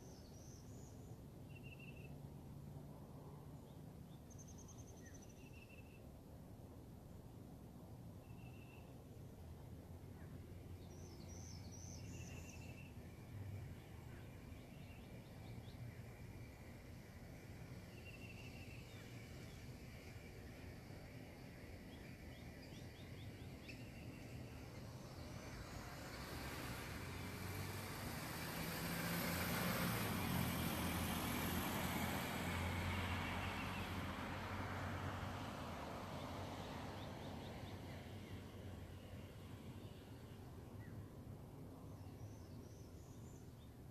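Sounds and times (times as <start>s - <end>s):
motor vehicle passing: 24.3s - 39.9s.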